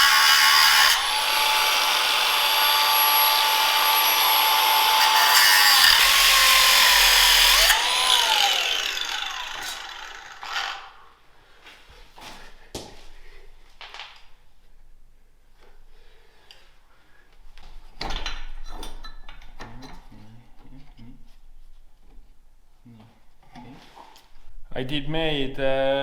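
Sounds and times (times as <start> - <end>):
power tool whining on steel: 0.0 - 11.0.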